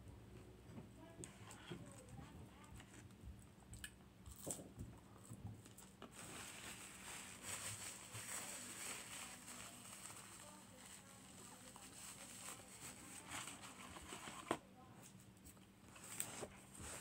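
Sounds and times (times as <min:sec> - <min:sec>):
paper napkin crinkling: 0:06.1 - 0:14.6.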